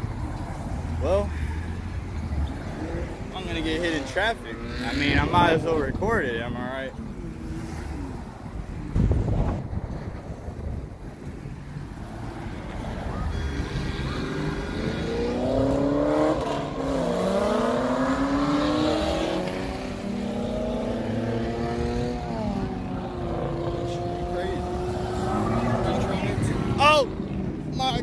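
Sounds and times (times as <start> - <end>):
traffic passing close by: 0.0 - 28.0
car accelerating past: 12.2 - 27.2.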